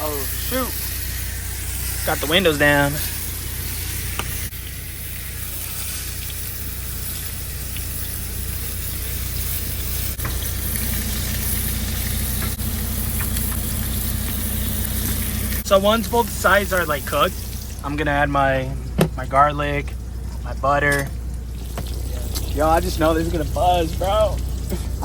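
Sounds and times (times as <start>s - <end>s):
steak sizzling in frying pan: 0.0s - 17.8s
constant low hum: 0.0s - 25.0s
steady low drone: 8.2s - 25.0s.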